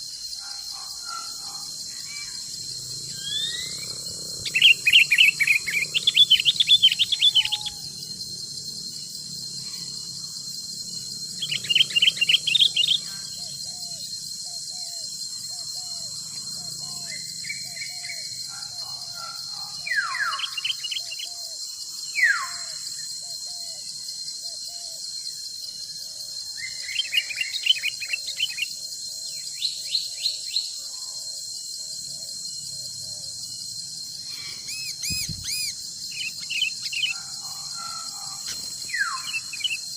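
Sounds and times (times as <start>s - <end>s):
insect drone: 0.0s - 39.9s
birds calling: 3.1s - 7.8s
falling bird whistles: 34.7s - 36.8s.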